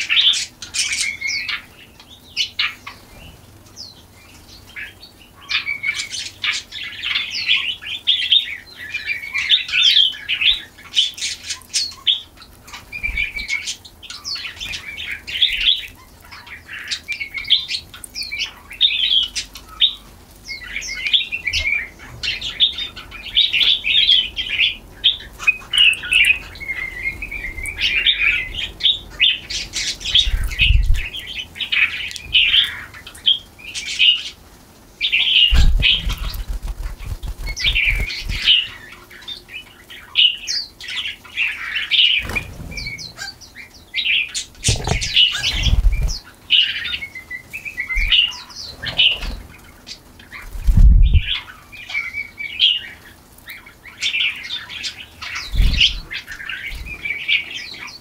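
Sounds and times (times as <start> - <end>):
small songbirds chirping: 0.0 - 58.0.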